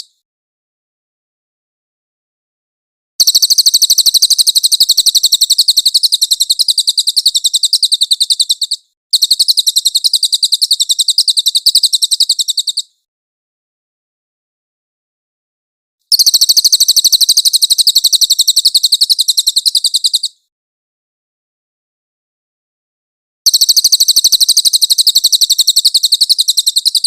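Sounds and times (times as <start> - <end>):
songbird rapid high chirps: 3.2 - 13.0, 16.1 - 20.4, 23.5 - 27.0.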